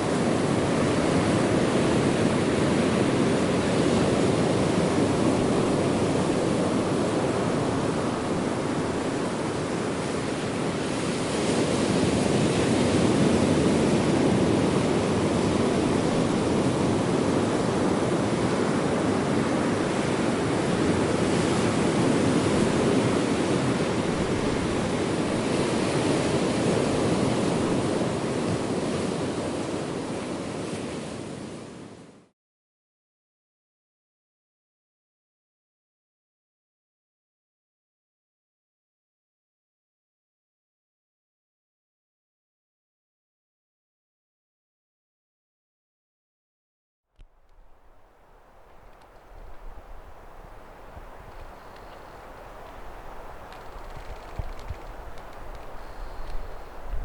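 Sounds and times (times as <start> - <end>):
ocean waves washing ashore: 0.0 - 32.3, 47.3 - 57.0.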